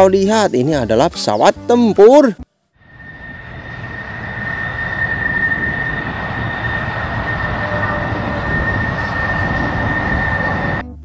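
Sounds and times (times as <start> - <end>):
jet engine roar and whine: 2.8 - 10.8.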